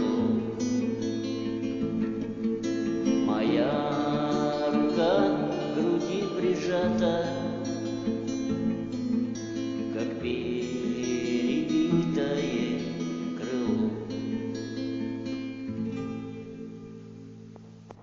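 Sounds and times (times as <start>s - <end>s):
person singing: 0.0s - 8.3s, 9.7s - 15.1s
acoustic guitar strumming: 0.0s - 18.0s.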